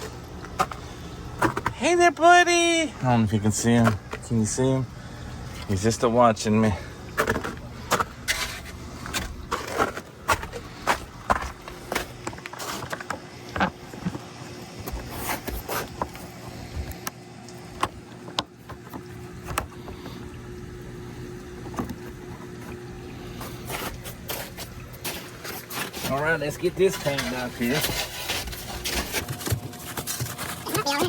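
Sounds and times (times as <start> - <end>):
faint steady hum: 0.0 - 31.0
sharp knocks and crunches: 7.2 - 17.0, 23.4 - 31.0.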